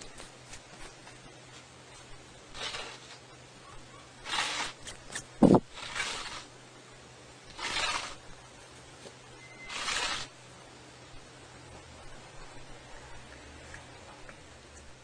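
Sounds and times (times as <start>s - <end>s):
cat hissing: 4.2s - 4.9s.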